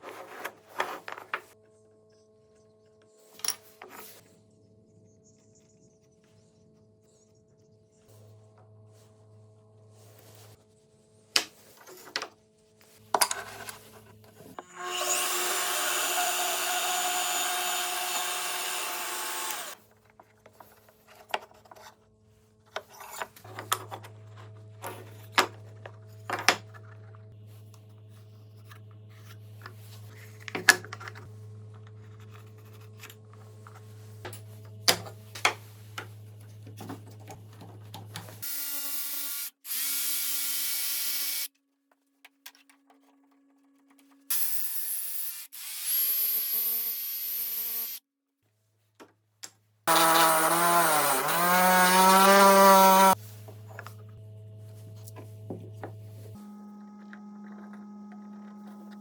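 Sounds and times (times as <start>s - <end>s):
power tool running: 14.6s - 19.8s, 38.4s - 41.5s, 44.3s - 48.0s, 49.9s - 59.0s
low hum: 23.4s - 38.4s, 52.2s - 59.0s.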